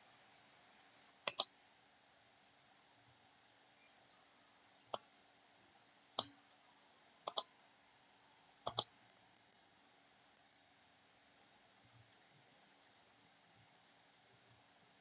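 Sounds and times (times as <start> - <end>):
faint steady hum: 0.0 - 15.0
computer mouse clicks: 1.3 - 1.5, 4.9 - 5.1, 6.2 - 6.4, 7.2 - 7.5, 8.6 - 9.2.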